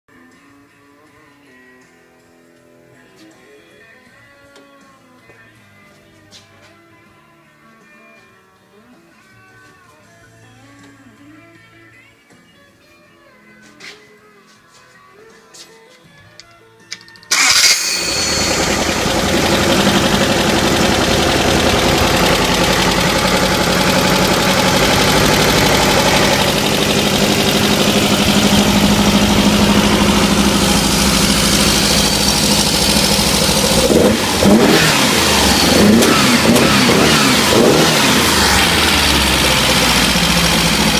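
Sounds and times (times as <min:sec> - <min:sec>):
engine cranking and starting: 0:17.0 - 0:40.9
engine revving: 0:17.3 - 0:40.9
engine running loud: 0:17.3 - 0:40.9.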